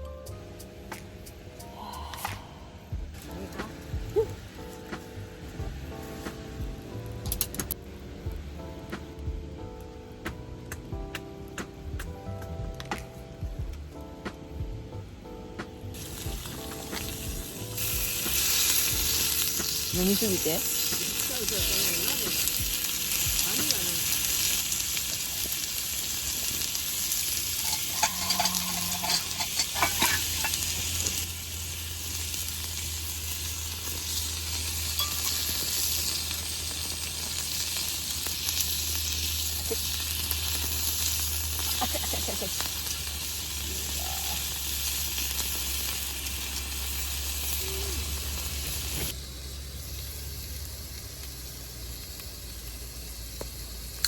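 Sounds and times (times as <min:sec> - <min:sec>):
food sizzling in a pan: 0:15.8 - 0:54.0.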